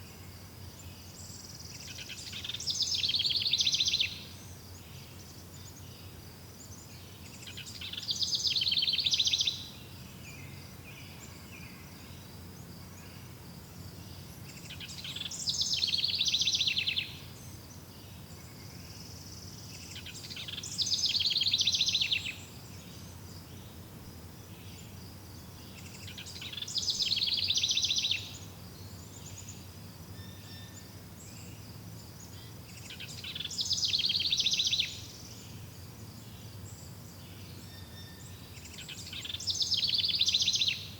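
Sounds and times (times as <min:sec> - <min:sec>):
songbird trilling: 0:01.8 - 0:04.2, 0:07.4 - 0:09.8, 0:14.6 - 0:17.2, 0:19.7 - 0:23.8, 0:25.6 - 0:29.5, 0:32.3 - 0:35.6, 0:37.6 - 0:40.9.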